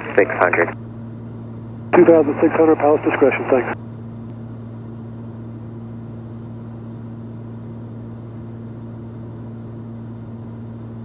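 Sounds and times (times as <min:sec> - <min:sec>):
aircraft engines droning: 0:00.0 - 0:00.8, 0:02.0 - 0:03.8.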